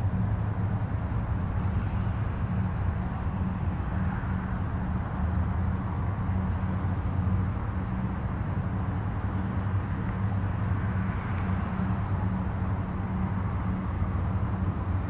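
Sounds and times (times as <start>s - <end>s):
distant highway traffic rumble: 0.0s - 15.0s.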